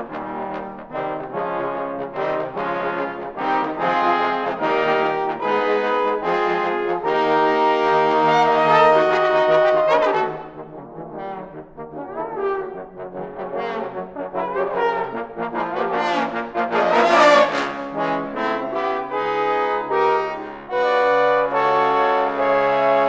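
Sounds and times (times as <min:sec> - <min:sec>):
trombone ensemble playing: 0:00.0 - 0:23.0.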